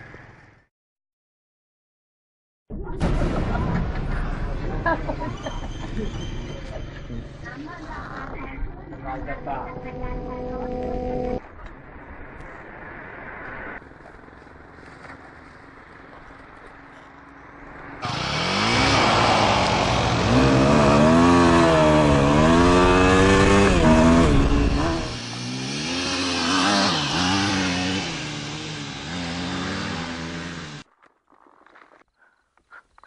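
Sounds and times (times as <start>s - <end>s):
dirt bike engine revving: 18.0s - 30.9s.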